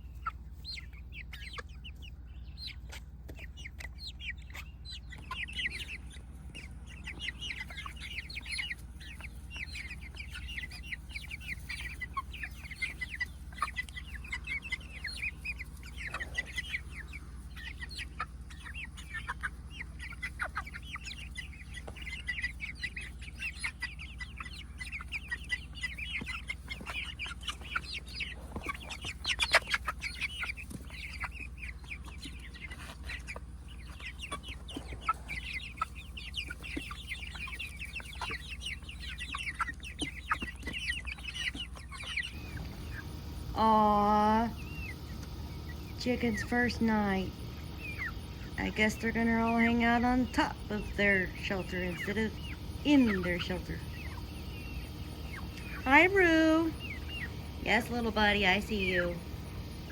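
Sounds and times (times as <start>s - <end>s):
chickens clucking and chirping: 0.0s - 59.9s
steady low rumble: 42.3s - 59.9s.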